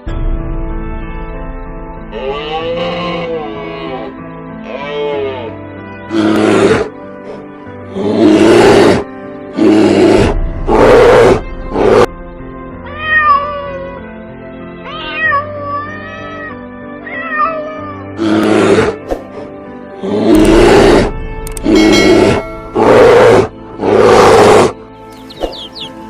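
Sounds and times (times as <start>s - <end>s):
background music: 0.0s - 26.0s
cat crying and meowing: 12.8s - 14.1s, 14.8s - 18.2s.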